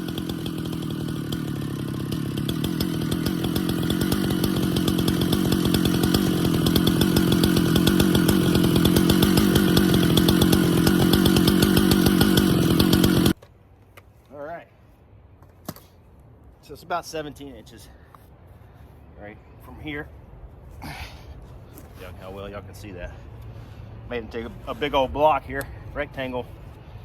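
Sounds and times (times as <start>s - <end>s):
chainsaw cutting wood: 0.0s - 13.4s.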